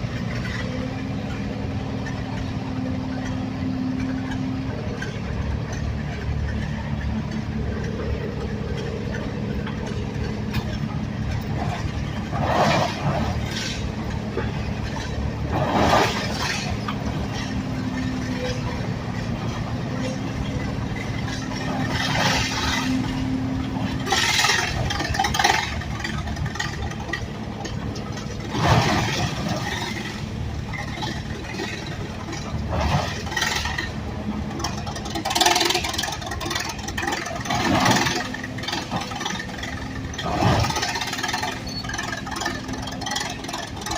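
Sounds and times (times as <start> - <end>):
engine running steadily: 0.0 - 43.9.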